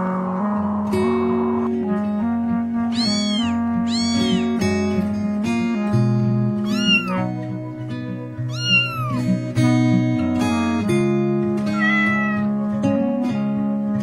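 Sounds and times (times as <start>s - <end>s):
background guitar music: 0.0s - 14.0s
cat meowing: 2.9s - 4.7s, 6.6s - 7.3s, 8.4s - 9.4s, 11.7s - 12.5s.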